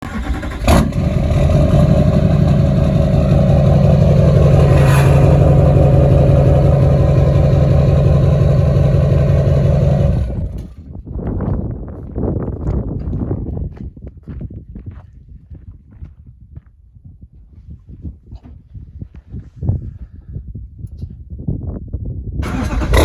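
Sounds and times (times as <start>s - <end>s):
diesel engine running loudly: 0.0s - 10.7s, 22.4s - 23.0s
sharp noise: 0.1s - 10.5s.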